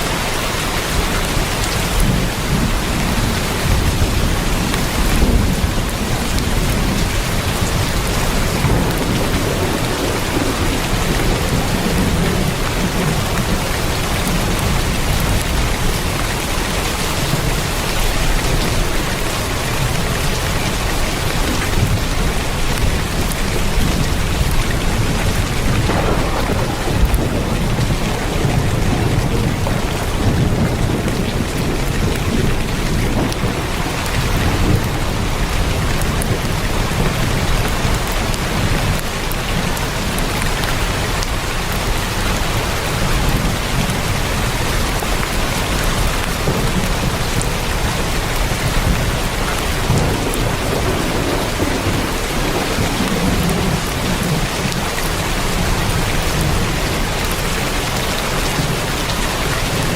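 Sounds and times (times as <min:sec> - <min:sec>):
heavy rain on a tin roof: 0:00.0 - 0:59.9
low rumble: 0:23.7 - 0:32.4.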